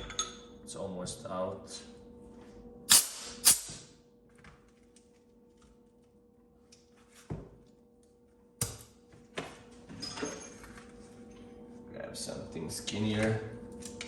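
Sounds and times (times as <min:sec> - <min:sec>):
compressed air blasts: 0:02.9 - 0:03.8.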